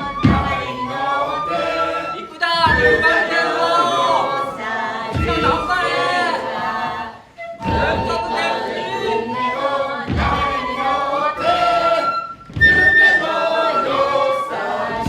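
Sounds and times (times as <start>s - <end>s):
low thud: 0.0s - 0.8s, 2.6s - 3.4s, 5.1s - 6.1s, 7.6s - 8.4s, 10.0s - 11.8s, 12.4s - 14.0s
group singing unaccompanied: 0.0s - 15.0s.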